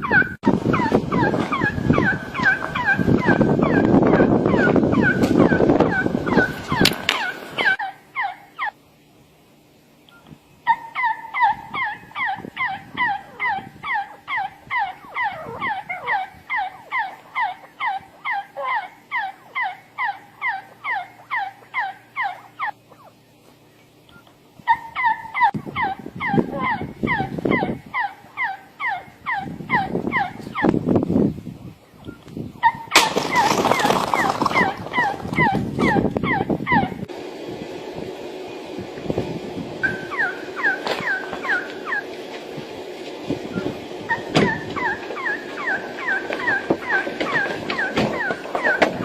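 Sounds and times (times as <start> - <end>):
bird calling falling notes: 32.0 - 36.9, 39.8 - 42.3, 43.4 - 49.0.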